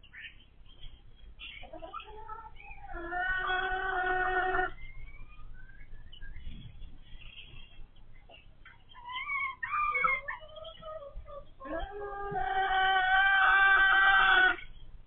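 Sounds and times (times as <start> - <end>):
hen squawking and calling: 1.4 - 5.5, 8.3 - 14.8.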